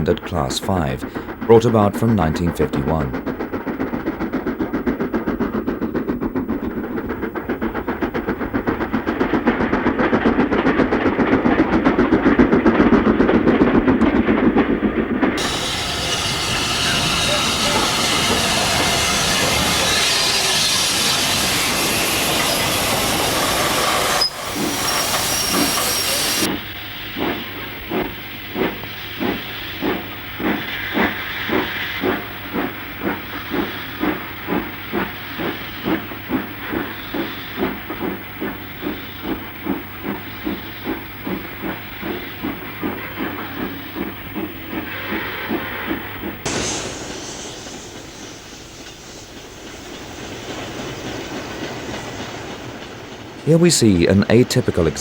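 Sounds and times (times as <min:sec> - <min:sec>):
steam locomotive exhaust beats: 0:00.0 - 0:55.0
loud steam hiss: 0:15.4 - 0:26.5, 0:44.8 - 0:55.0.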